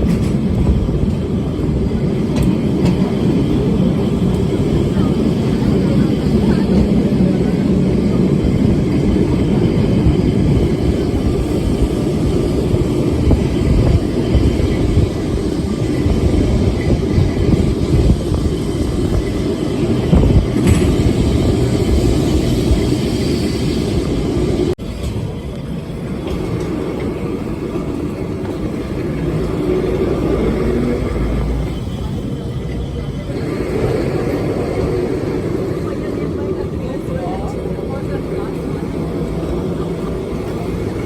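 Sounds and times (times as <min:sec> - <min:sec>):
tram rumbling along rails: 0:00.0 - 0:41.0.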